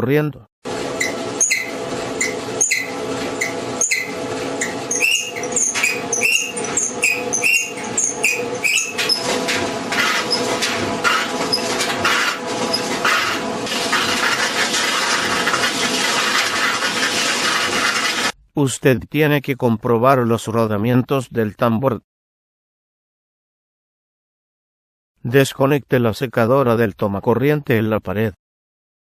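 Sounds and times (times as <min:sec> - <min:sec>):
clothes dryer running: 0:00.6 - 0:18.4
dryer drum scraping rub: 0:00.7 - 0:18.4
dryer drum squeaking and clicking: 0:00.7 - 0:18.4.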